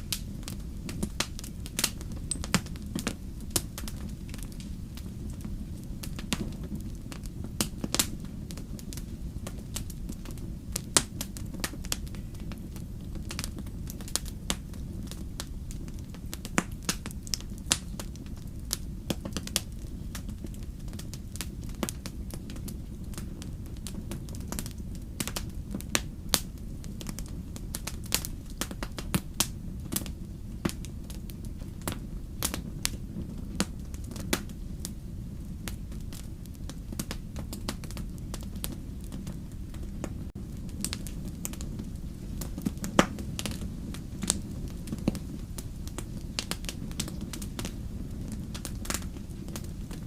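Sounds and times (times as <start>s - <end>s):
fire crackling: 0.0s - 50.0s.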